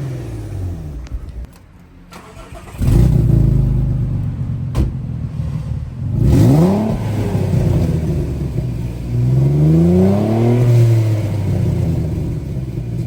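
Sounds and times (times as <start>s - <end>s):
car engine revving loudly: 0.0s - 1.1s, 2.3s - 13.0s.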